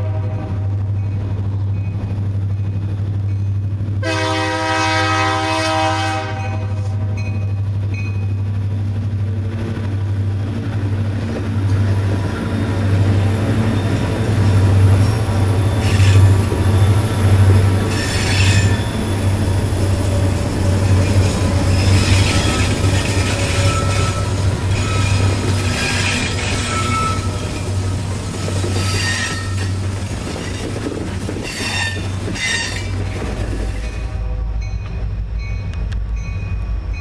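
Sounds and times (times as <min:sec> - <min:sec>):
locomotive horn blast: 0:00.0 - 0:00.8, 0:04.0 - 0:07.4, 0:34.0 - 0:34.8
wheels clattering on rails: 0:06.4 - 0:34.1
diesel engines droning: 0:06.9 - 0:28.9
wheels squealing: 0:11.3 - 0:34.1.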